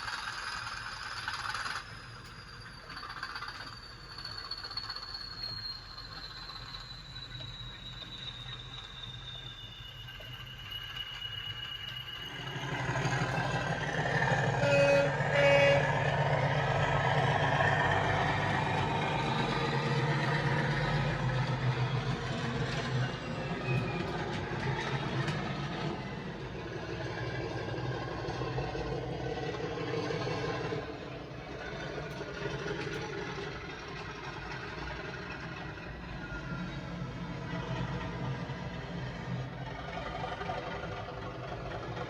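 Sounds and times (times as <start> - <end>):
model train diesel engine sound: 0.0 - 42.0
train horn toots: 13.4 - 18.4.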